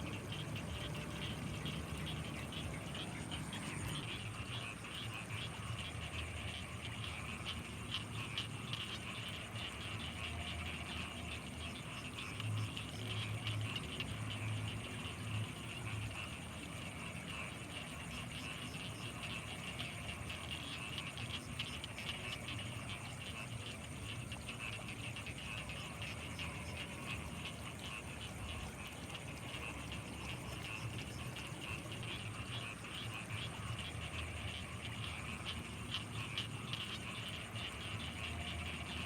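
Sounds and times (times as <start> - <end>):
low pulsing calls: 0.0 - 7.2
constant high-pitched tone: 0.0 - 39.0
frogs calling: 0.0 - 39.0.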